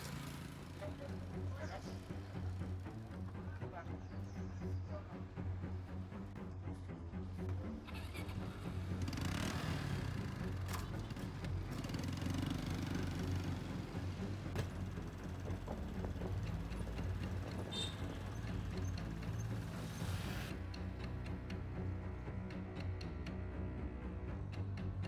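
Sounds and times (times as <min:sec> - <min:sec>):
motorbike engine running: 0:00.0 - 0:03.3, 0:08.0 - 0:21.2.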